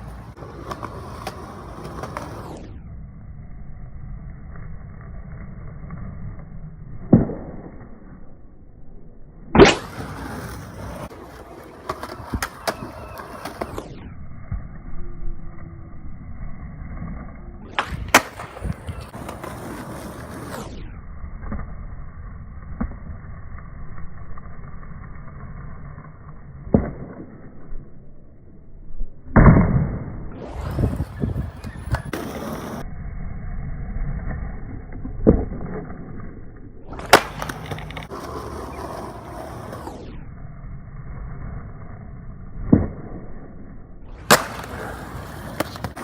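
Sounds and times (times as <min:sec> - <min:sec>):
skateboard tail pops: 0:00.0 - 0:02.6, 0:07.0 - 0:07.9, 0:09.5 - 0:13.9, 0:17.7 - 0:20.7, 0:36.9 - 0:40.0, 0:44.2 - 0:46.0
skateboard landing slaps: 0:00.0 - 0:02.7, 0:07.0 - 0:08.0, 0:09.5 - 0:13.9, 0:17.7 - 0:20.7, 0:26.6 - 0:27.5, 0:29.3 - 0:32.8, 0:36.9 - 0:40.0, 0:42.6 - 0:43.4, 0:44.2 - 0:46.0
skateboard wheels rolling on pavement: 0:00.0 - 0:08.2, 0:09.6 - 0:27.2, 0:30.3 - 0:46.0.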